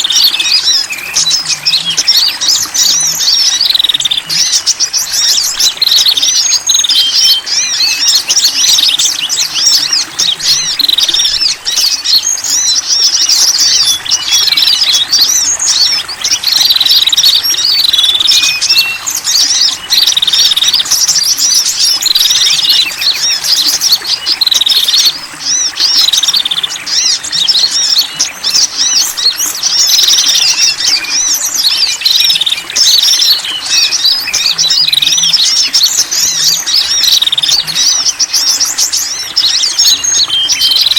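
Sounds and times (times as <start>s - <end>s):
high bird twittering: 0.0s - 40.9s.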